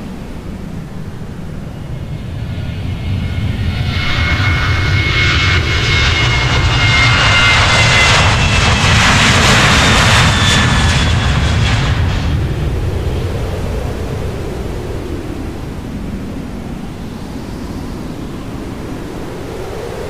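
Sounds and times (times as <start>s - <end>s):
airliner engines passing: 0.0s - 20.0s.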